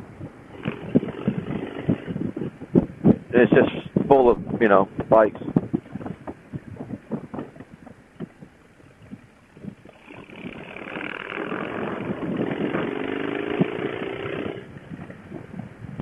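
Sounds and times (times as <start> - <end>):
wind: 0.0 - 16.0
microphone crackle and clicks: 0.1 - 16.0
motorcycle engine: 9.9 - 14.7.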